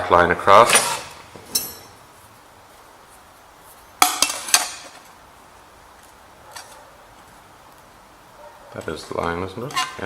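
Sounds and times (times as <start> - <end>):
metal tools clinking: 0.6 - 2.0.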